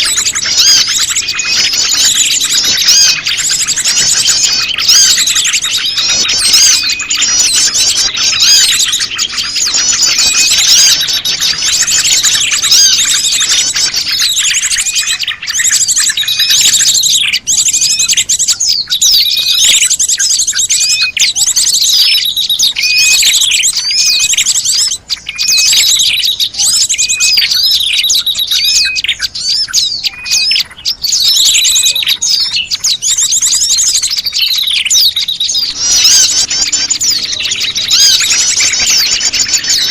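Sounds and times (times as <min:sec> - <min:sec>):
bird calls: 0:00.0 - 0:39.9
small birds chirping: 0:00.0 - 0:39.9.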